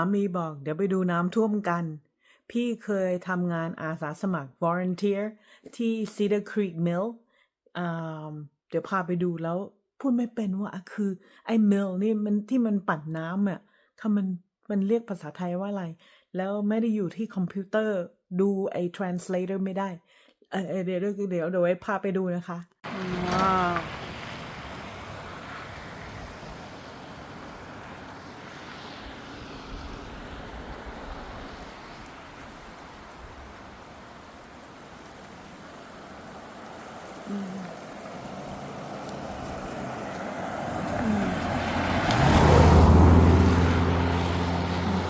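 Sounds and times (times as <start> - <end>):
vehicle engine humming: 22.9 - 45.0
steady rushing noise: 23.9 - 41.0.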